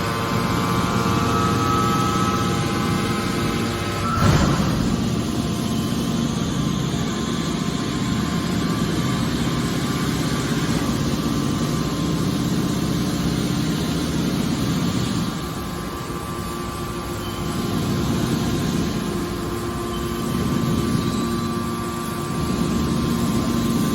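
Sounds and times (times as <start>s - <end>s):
baler motor and pump hum: 0.0s - 23.9s.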